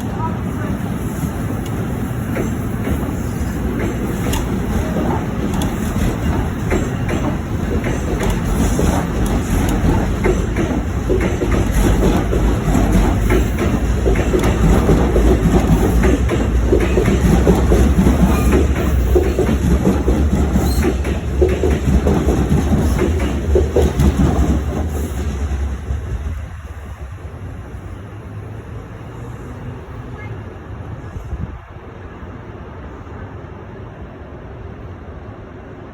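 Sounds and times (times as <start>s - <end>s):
train rumbling past: 0.0s - 35.9s
train wheels clicking over rail joints: 1.1s - 26.6s.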